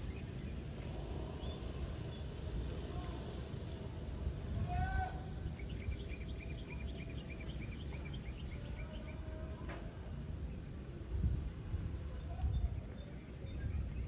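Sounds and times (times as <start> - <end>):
low background rumble: 0.0 - 14.0
bird chirping: 5.5 - 9.2.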